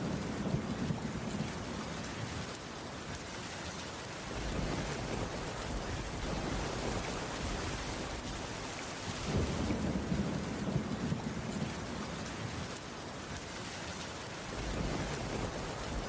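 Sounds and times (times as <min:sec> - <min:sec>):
distant thunder rumble: 0:00.0 - 0:02.5, 0:04.3 - 0:12.8, 0:14.4 - 0:16.0
rain on a wooden roof: 0:00.0 - 0:16.0.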